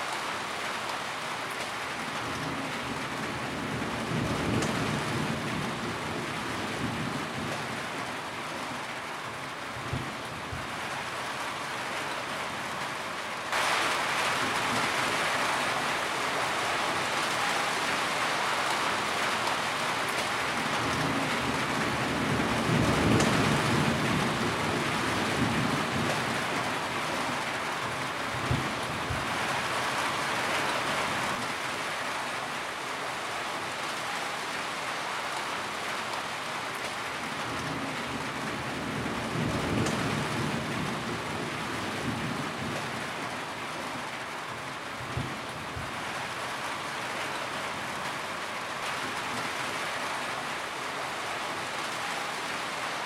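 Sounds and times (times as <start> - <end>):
heavy rain on a tin roof: 0.0 - 53.0
low rumble of thunder: 20.6 - 27.3.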